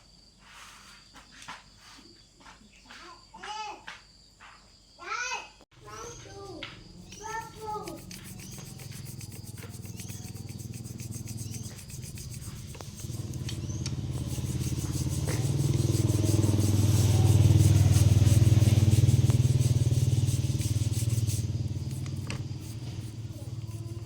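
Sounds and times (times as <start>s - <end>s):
small engine running: 6.1s - 24.0s.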